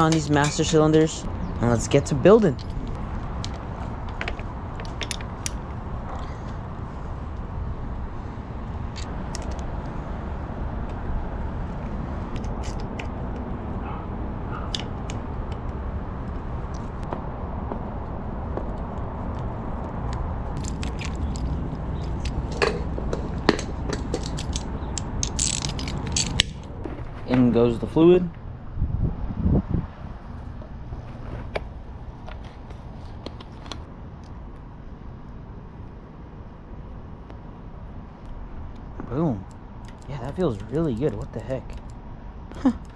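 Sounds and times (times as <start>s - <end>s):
small parts and tools clicking: 2.6s - 5.6s, 20.6s - 26.7s.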